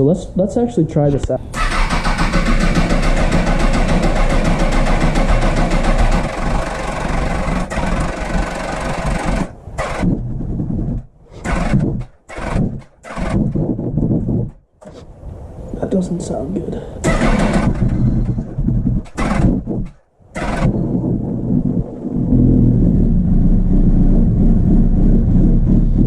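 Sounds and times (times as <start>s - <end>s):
motorcycle engine running: 1.6s - 9.6s, 22.3s - 26.0s
engine ticking: 1.6s - 10.2s, 17.0s - 18.6s.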